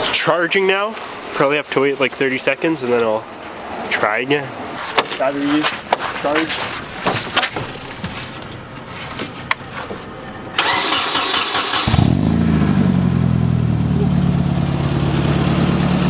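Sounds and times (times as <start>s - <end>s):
car engine idling: 6.8s - 16.0s
starter motor cranking: 10.6s - 12.2s.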